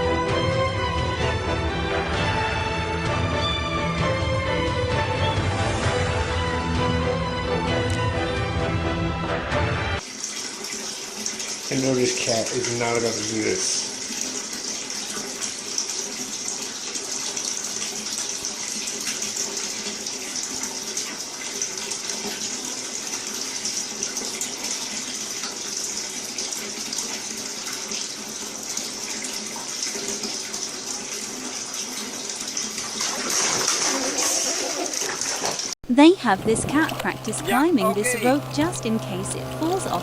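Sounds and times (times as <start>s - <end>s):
running water: 10.0s - 40.0s.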